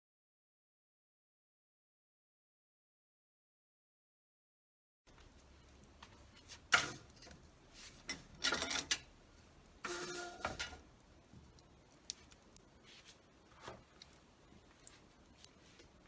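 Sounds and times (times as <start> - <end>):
objects clattering and knocking: 5.2 - 9.2, 9.8 - 11.0.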